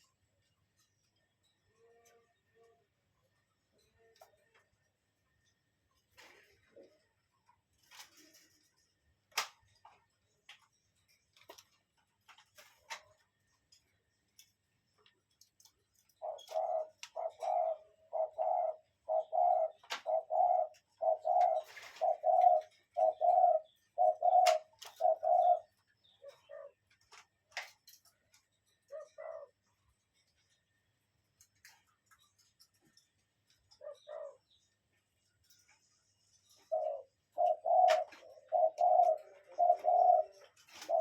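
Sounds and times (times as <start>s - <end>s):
bird cooing: 6.2s - 7.2s, 16.1s - 27.0s, 28.7s - 29.7s, 33.7s - 34.8s, 35.5s - 41.0s.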